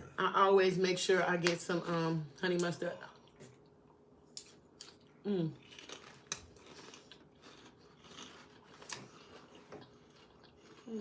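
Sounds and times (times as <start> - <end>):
chewing and mouth sounds: 3.2 - 11.0.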